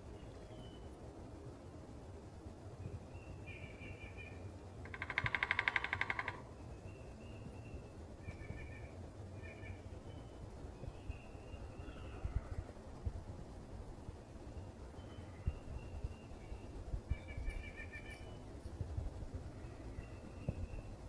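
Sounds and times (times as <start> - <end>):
thin bird calls: 3.1 - 12.6, 14.4 - 18.7
woodpecker drumming: 4.8 - 6.7.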